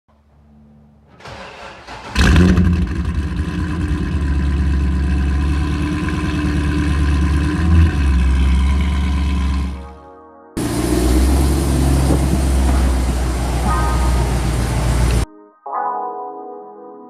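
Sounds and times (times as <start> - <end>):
engine starter cranking: 1.1 - 3.8
car engine idling: 1.3 - 10.0, 10.6 - 15.2.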